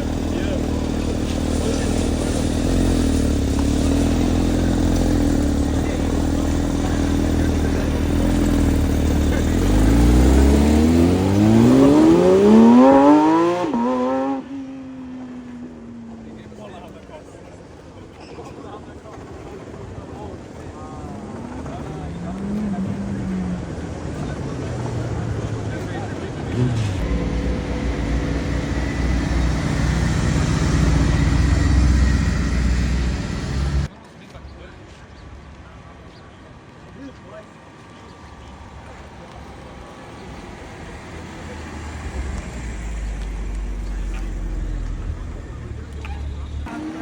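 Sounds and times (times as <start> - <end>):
car engine revving: 0.0 - 16.5, 21.2 - 33.9, 40.3 - 47.0.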